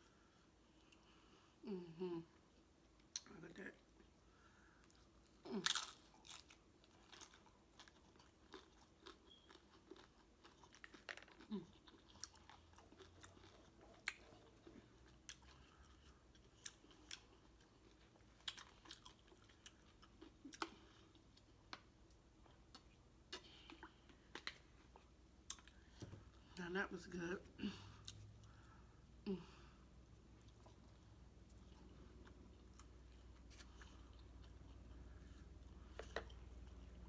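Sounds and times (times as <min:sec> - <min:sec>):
person chewing food: 0:03.9 - 0:26.5, 0:27.8 - 0:37.0.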